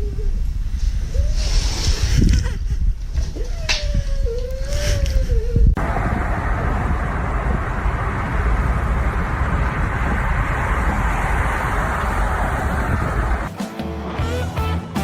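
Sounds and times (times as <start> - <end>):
loud steady rushing noise: 5.8 - 13.6
music: 13.5 - 15.0.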